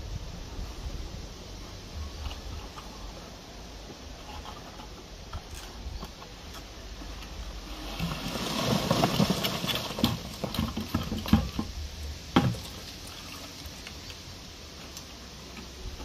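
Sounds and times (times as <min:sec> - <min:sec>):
wet concrete scraping: 0:04.1 - 0:16.0.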